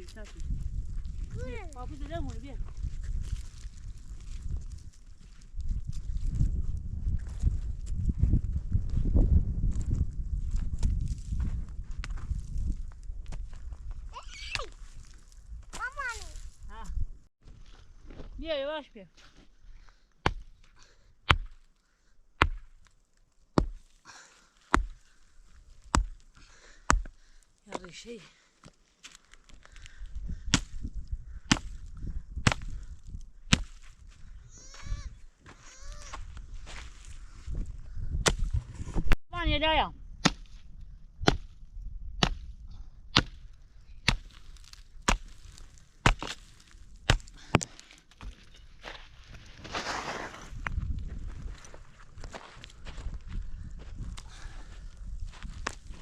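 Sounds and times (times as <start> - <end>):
axe chopping wood: 20.2 - 20.6, 21.3 - 21.7, 22.4 - 22.9, 23.6 - 23.9, 24.7 - 25.0, 25.8 - 26.2, 26.9 - 27.9, 30.5 - 30.8, 31.5 - 31.8, 32.4 - 32.8, 33.5 - 33.9, 38.2 - 38.5, 40.2 - 40.6, 41.2 - 41.6, 42.2 - 42.5, 43.1 - 48.4.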